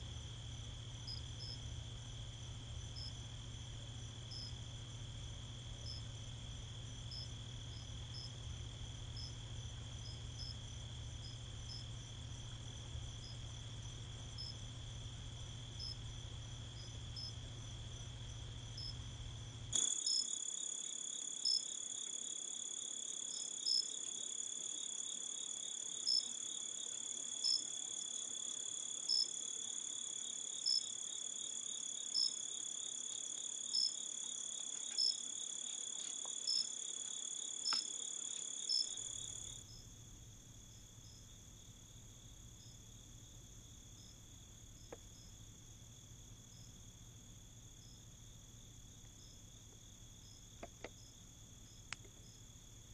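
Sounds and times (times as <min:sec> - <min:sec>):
insects trilling: 0:04.0 - 0:39.9.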